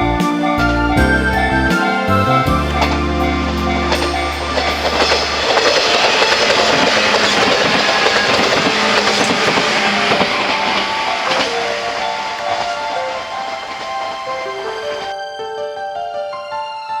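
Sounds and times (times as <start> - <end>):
train wheels rushing on rails: 2.3 - 15.1
wheels clicking over rail joints: 2.6 - 15.1.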